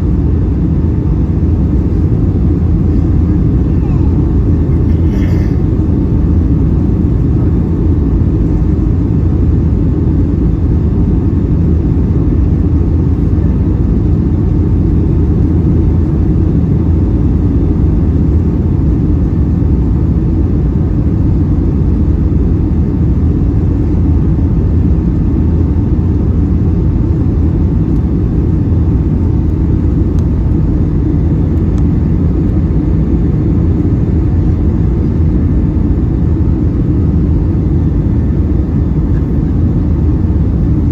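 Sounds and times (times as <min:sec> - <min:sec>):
airliner cabin engine rumble: 0:00.0 - 0:40.9.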